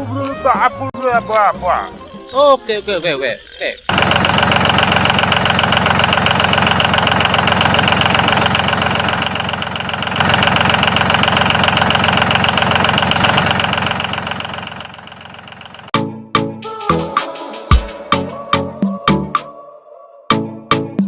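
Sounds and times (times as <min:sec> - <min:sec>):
tractor engine idling with knocking: 0:03.9 - 0:15.9.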